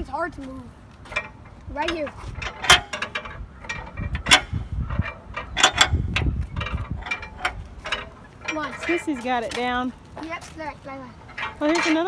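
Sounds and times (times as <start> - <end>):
mechanical clicking and clunking: 1.1 - 9.9, 11.2 - 12.0.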